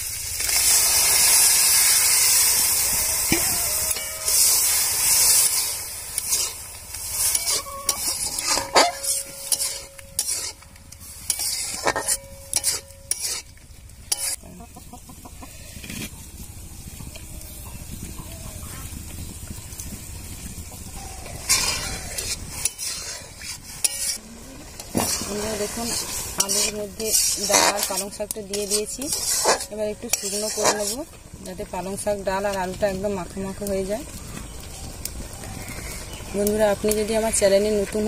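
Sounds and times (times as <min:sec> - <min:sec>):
food sizzling in hot oil: 0:00.0 - 0:14.9, 0:19.0 - 0:38.0
metal spatula scraping pan: 0:03.2 - 0:14.5, 0:21.4 - 0:31.1.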